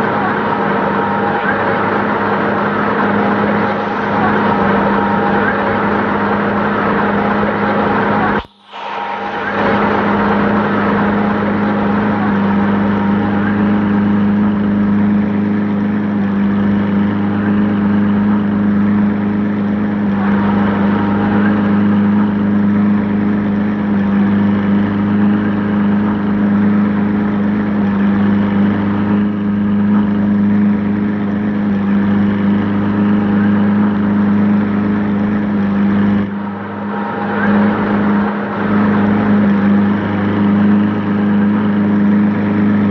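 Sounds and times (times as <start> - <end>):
engine running steadily: 0.0 - 42.9.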